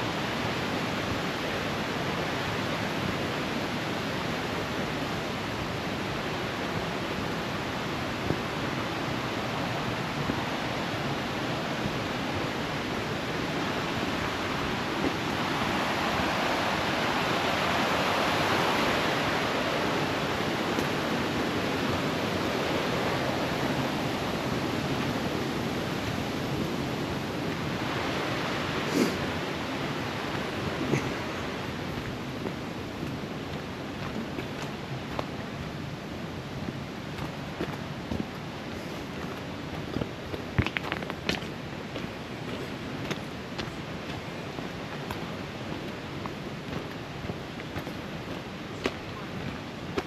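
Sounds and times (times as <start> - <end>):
creek water rushing: 0.0 - 50.0.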